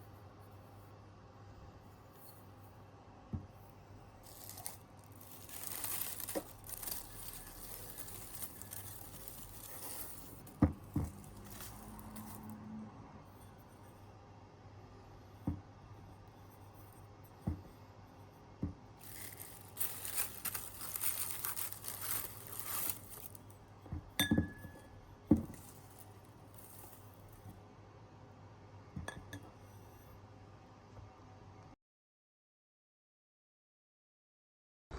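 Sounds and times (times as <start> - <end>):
crinkling or tearing: 4.2 - 12.6, 19.0 - 23.6, 25.4 - 27.4
glass clinking: 24.2 - 26.0.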